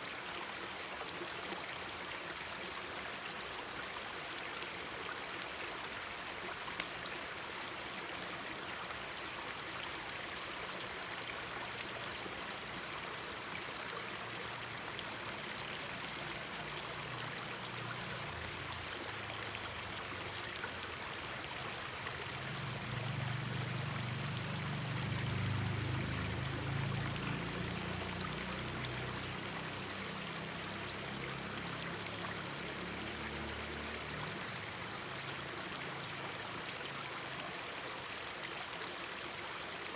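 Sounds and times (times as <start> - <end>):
stream babbling: 0.0 - 39.9
campfire crackling: 5.4 - 7.1.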